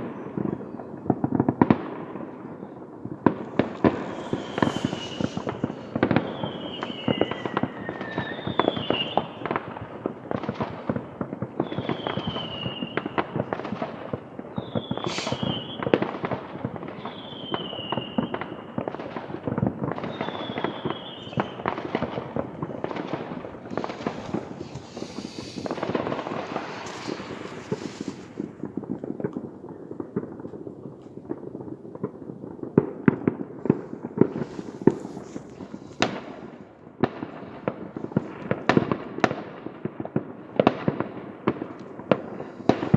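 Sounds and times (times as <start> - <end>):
fireworks crackling and popping: 0.0 - 42.9
loud sharp firework bangs: 0.0 - 42.9
firework whistles falling in pitch: 2.6 - 10.4, 11.5 - 13.8, 14.5 - 16.3, 16.9 - 19.2, 19.8 - 29.0
rushing hiss: 3.4 - 9.0, 15.0 - 15.6, 22.1 - 28.8.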